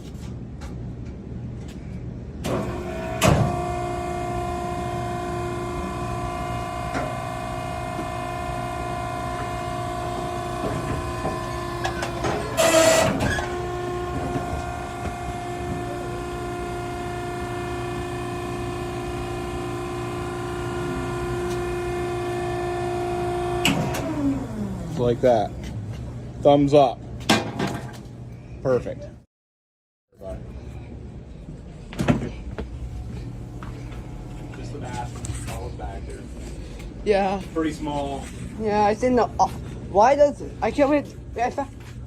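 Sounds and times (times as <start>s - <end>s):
hydraulic unit whining: 2.4s - 26.3s.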